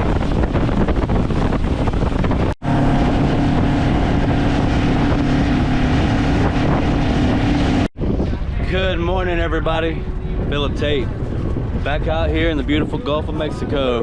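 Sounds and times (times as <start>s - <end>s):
boat motor running: 0.0s - 8.6s
wind buffeting microphone: 0.0s - 14.0s.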